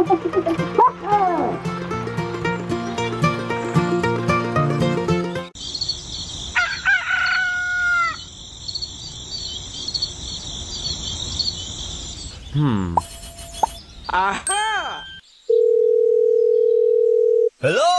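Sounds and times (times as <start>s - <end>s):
music: 0.0s - 5.6s
high chirping: 5.6s - 6.8s, 8.0s - 15.5s
rooster crowing: 6.6s - 8.3s.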